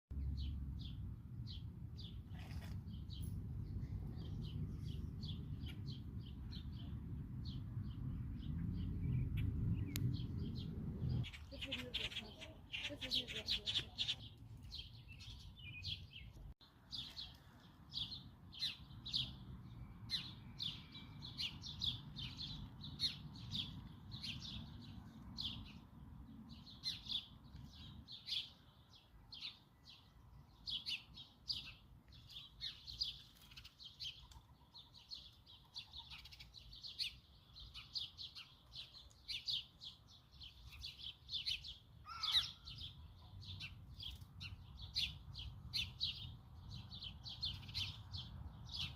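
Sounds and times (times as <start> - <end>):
birds chirping: 0.1 - 48.9
faint low rumble: 0.2 - 11.6.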